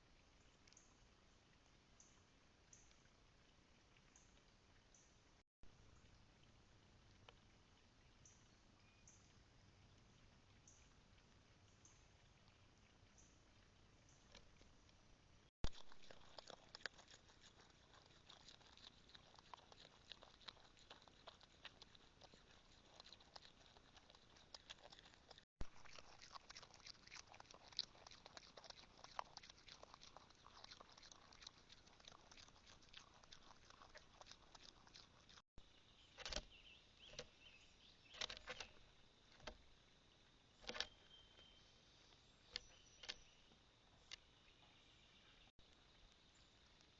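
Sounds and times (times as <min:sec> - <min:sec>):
birds pecking at seed: 0:15.6 - 0:35.4, 0:36.1 - 0:39.7, 0:40.5 - 0:41.4.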